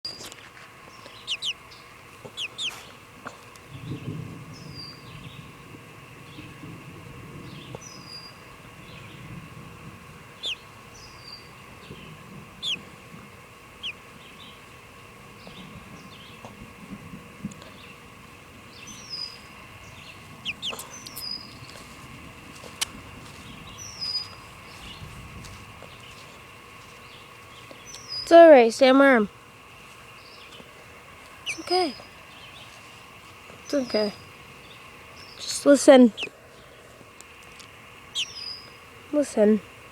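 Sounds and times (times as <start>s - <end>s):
birds chirping: 0.0s - 5.6s, 7.4s - 39.9s
hen clucking: 1.0s - 2.9s, 10.3s - 10.7s, 12.6s - 13.0s, 13.8s - 14.0s, 20.4s - 21.3s, 31.4s - 32.0s
distant thunder rumbling: 3.6s - 26.8s.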